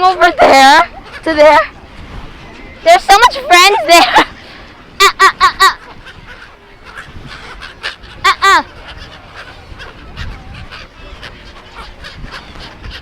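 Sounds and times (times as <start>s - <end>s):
gulls calling harshly: 0.0s - 13.0s
steady background noise: 0.0s - 13.0s.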